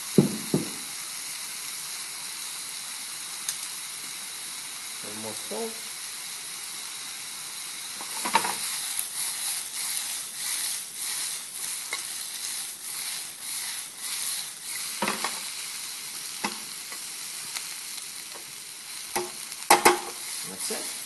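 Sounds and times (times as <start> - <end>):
food sizzling in a pan: 0.0 - 21.0
metal tongs clicking on pan: 19.1 - 20.2.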